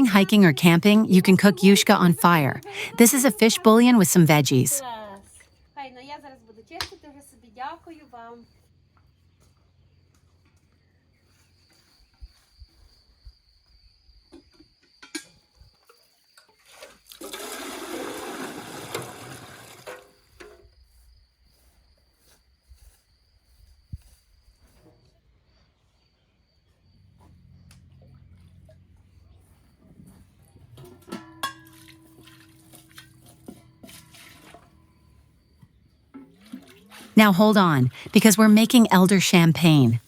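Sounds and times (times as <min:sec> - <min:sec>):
faint high tone: 0:00.0 - 0:04.8, 0:37.2 - 0:40.0.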